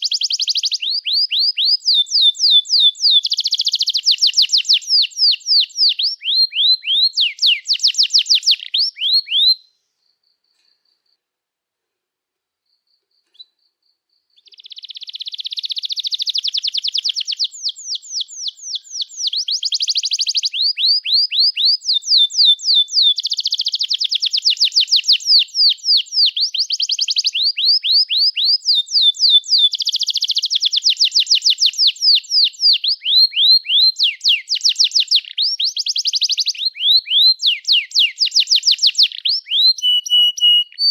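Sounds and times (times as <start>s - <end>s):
canary singing chirps and trills: 0.0s - 11.1s, 12.7s - 40.9s.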